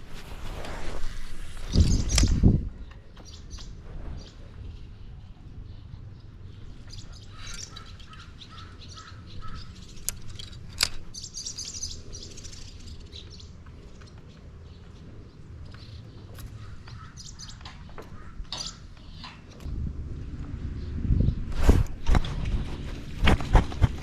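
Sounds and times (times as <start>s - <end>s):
birds chirping: 1.4s - 24.0s
low rumble: 19.6s - 24.0s.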